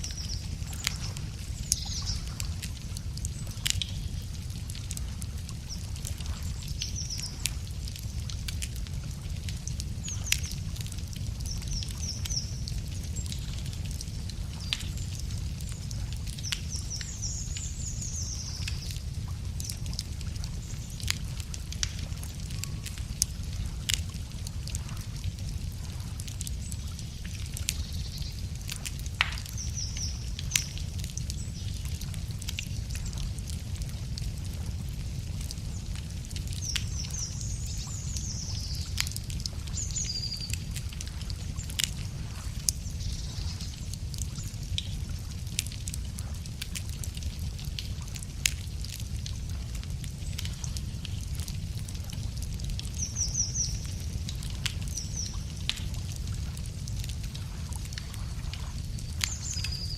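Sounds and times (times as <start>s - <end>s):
songbird singing: 0.0s - 2.4s, 14.6s - 19.0s, 36.6s - 39.0s, 39.7s - 40.7s, 59.3s - 59.9s
wood fire crackling: 0.0s - 59.9s.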